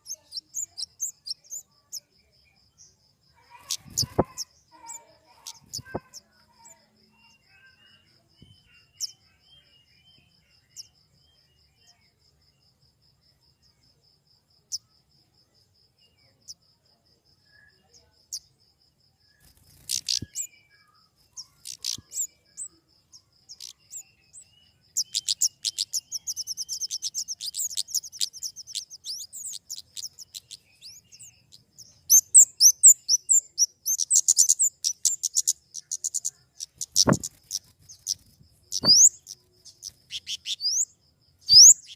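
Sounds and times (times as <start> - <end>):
bird high chips and twittering: 0.0 - 2.1, 2.8 - 11.5, 19.3 - 41.9.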